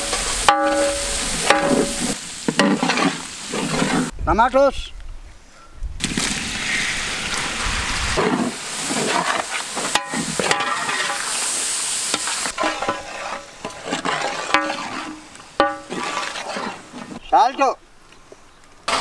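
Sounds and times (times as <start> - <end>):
food sizzling in hot oil: 0.0 - 4.1, 6.1 - 17.2
metal skimmer scraping a pot: 0.0 - 4.1, 8.2 - 11.3, 12.3 - 17.2.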